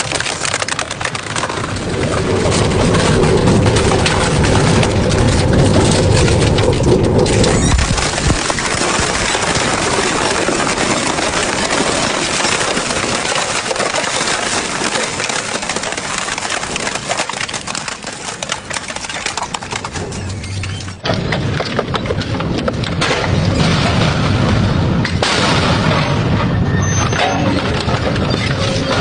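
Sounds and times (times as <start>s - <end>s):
shredder grinding material: 0.0s - 20.4s
crackling and snapping: 0.0s - 29.0s.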